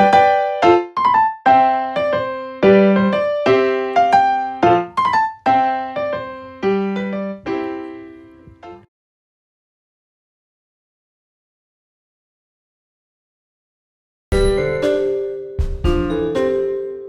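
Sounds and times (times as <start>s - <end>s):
gentle piano melody: 0.0s - 8.9s, 14.3s - 17.0s.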